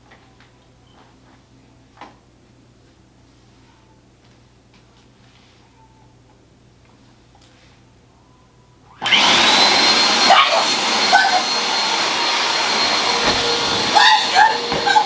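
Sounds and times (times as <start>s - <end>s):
vacuum cleaner motor whining: 9.0s - 15.0s.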